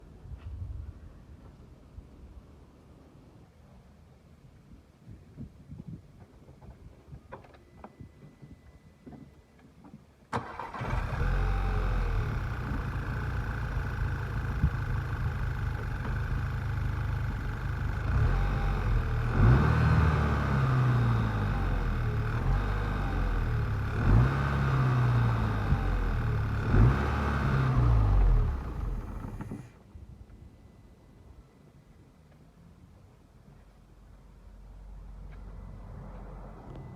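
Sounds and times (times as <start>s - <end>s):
car engine starting and idling: 10.3s - 29.8s
car engine revving: 10.4s - 29.6s.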